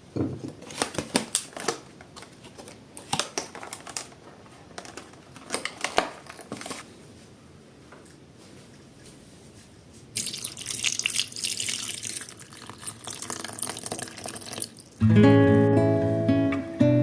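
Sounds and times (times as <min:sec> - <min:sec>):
acoustic guitar music: 0:15.0 - 0:17.0.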